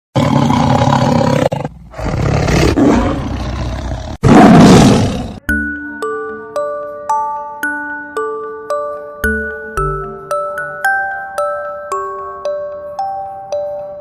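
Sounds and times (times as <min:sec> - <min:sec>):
mallet percussion tune: 0:05.4 - 0:14.0.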